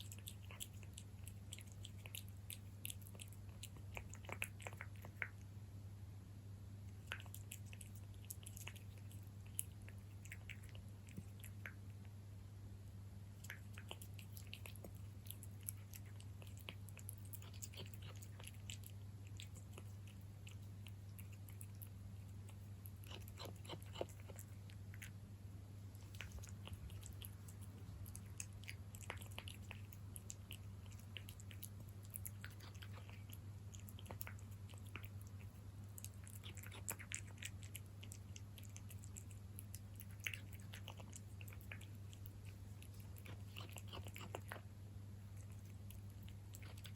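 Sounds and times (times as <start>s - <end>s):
cat chewing wet food: 0.0s - 5.8s, 6.8s - 12.5s, 13.1s - 46.9s
steady low hum: 0.0s - 46.9s.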